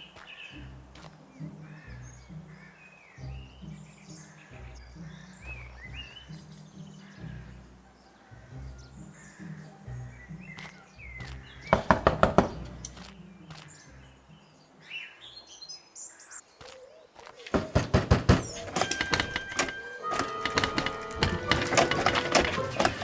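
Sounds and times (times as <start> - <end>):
music: 0.0 - 15.1, 17.8 - 23.0
faint bird chirps: 0.0 - 17.8
rapid sharp knocks: 11.7 - 12.8, 17.5 - 19.6.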